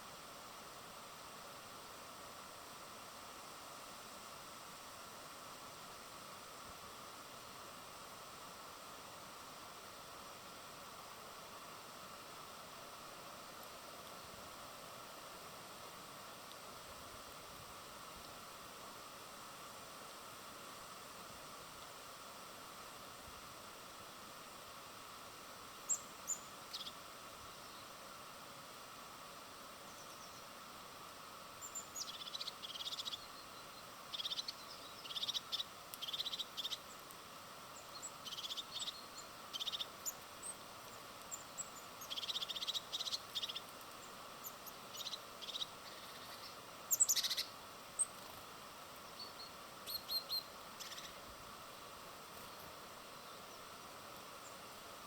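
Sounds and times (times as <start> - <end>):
faint steady hiss: 0.0 - 55.0
small birds chirping: 25.8 - 28.0, 29.9 - 30.5, 31.6 - 51.4, 52.3 - 54.8.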